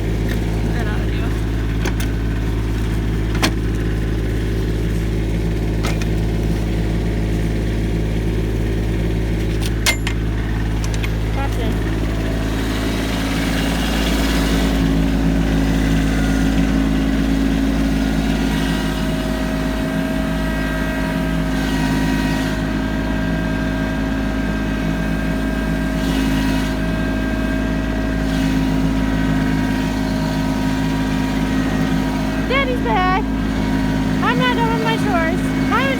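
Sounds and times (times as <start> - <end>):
tractor diesel engine running: 0.0 - 35.9
high engine whine: 26.7 - 35.9.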